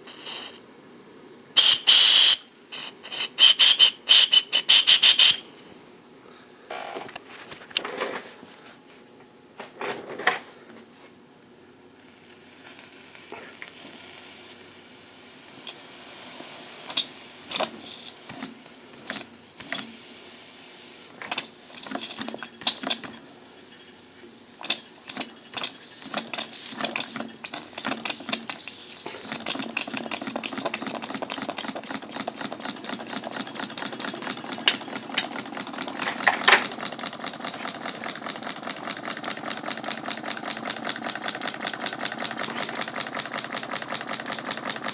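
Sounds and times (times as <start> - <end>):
steam hissing and spitting: 0.0 - 0.6, 1.6 - 5.4, 12.1 - 34.2
steam engine running: 1.6 - 5.5, 12.5 - 44.9
sharp clicks and knocks: 24.6 - 38.1.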